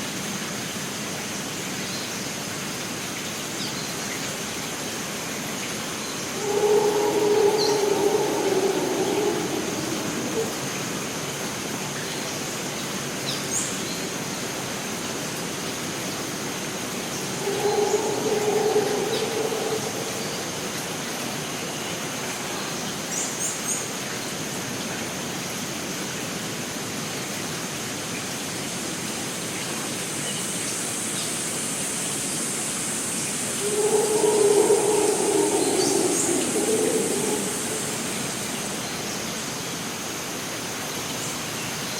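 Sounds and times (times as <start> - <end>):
high insect drone: 6.0 - 11.6, 16.4 - 23.4, 33.2 - 40.5
water hissing: 6.1 - 11.2, 16.9 - 22.6, 33.4 - 39.4
low animal call: 6.2 - 11.1, 16.9 - 22.8, 33.5 - 39.3.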